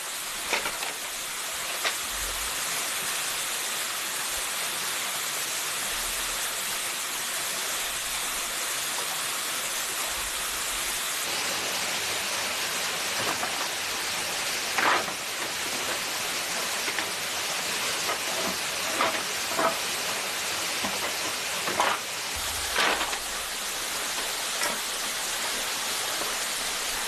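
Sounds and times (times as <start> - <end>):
forest stream rushing: 6.0 - 27.0.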